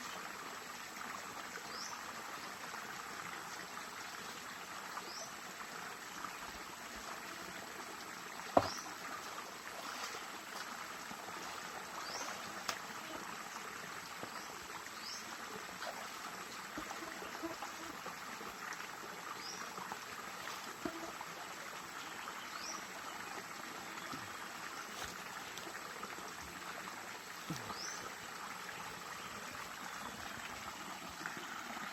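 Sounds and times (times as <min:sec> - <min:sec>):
stream trickling: 0:00.0 - 0:31.9.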